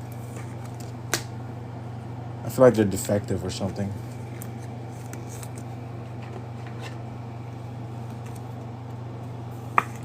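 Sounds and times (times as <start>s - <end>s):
handling cards and plastic sleeves: 0.1s - 1.3s, 4.0s - 7.0s, 8.0s - 8.7s.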